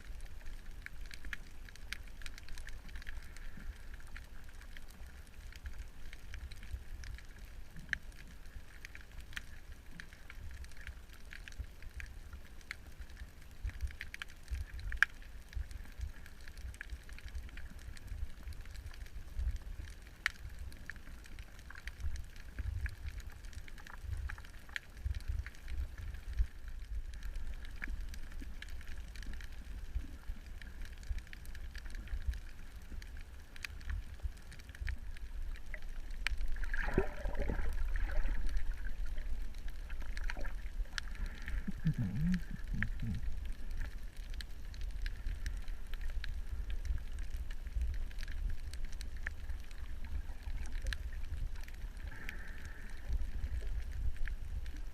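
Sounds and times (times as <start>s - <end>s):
underwater low rumble: 0.0s - 54.9s
sharp underwater clicks: 0.1s - 54.9s
rushing water surge: 36.6s - 38.6s.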